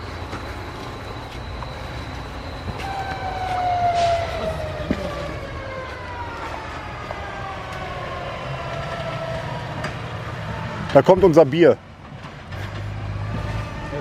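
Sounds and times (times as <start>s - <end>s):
whining tone falling in pitch: 0.0s - 12.0s, 12.8s - 14.0s
passing vehicle rumble: 2.8s - 14.0s.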